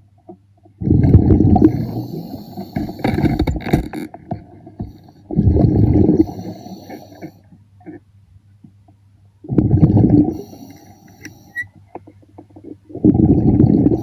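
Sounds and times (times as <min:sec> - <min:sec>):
underwater breath bubbles gurgling: 0:00.8 - 0:03.5, 0:04.8 - 0:07.4, 0:09.4 - 0:11.6, 0:12.6 - 0:14.0.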